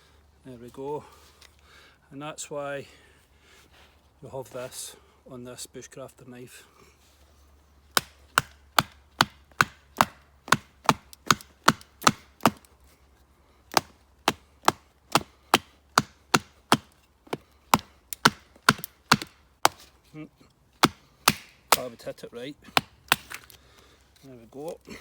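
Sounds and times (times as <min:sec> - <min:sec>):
baton knocking knife through wood: 0:07.9 - 0:12.7, 0:13.7 - 0:19.9, 0:20.8 - 0:22.0, 0:22.7 - 0:23.5.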